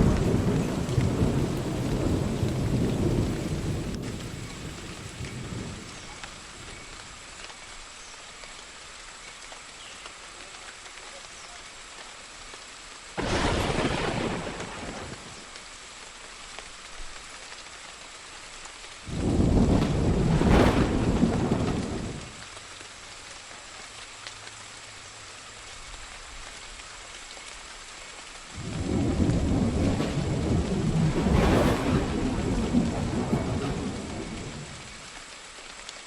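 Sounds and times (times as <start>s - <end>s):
thunder rolling: 0.0s - 6.8s, 13.2s - 15.3s, 19.1s - 22.4s, 28.6s - 35.1s
steady rain: 0.0s - 36.0s.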